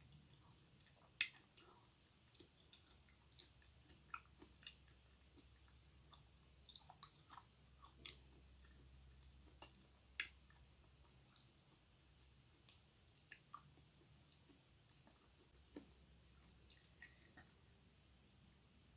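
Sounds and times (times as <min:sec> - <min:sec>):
wet chewing mouth clicks: 0:00.1 - 0:11.6.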